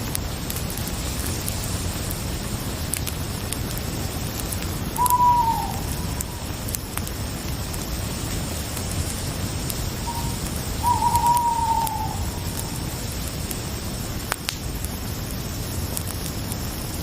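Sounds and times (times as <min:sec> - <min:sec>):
crickets chirping: 0:00.3 - 0:17.0
owl hooting: 0:04.9 - 0:06.7, 0:10.0 - 0:12.9.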